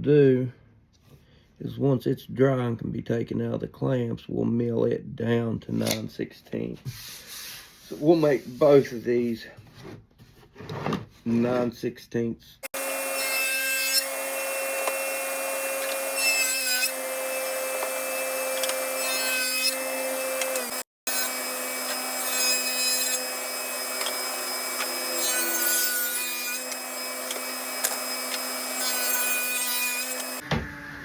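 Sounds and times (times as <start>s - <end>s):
power saw cutting wood: 12.6s - 31.0s.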